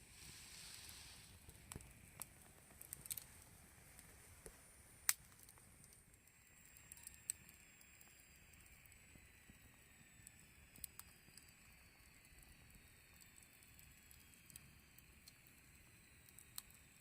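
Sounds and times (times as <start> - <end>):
campfire crackling: 0.0 - 17.0
sharp pops of burning wood: 1.5 - 3.3.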